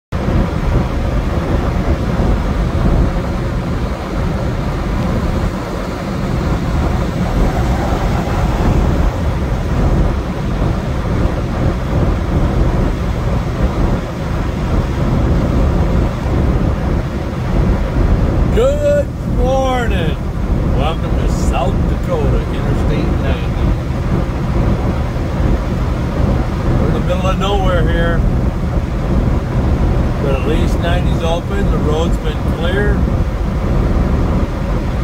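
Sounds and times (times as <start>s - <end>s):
truck engine rumbling: 0.1s - 34.8s.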